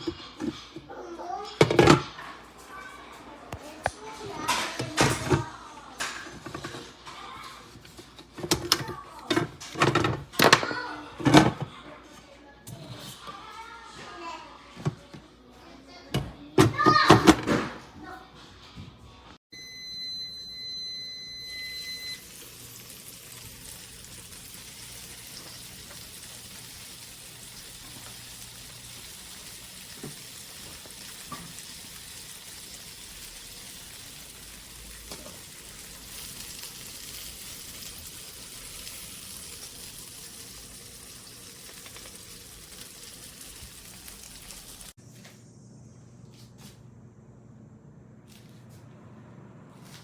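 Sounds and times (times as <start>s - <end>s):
electronic beep: 19.6s - 22.2s
food sizzling in a frying pan: 20.4s - 45.0s.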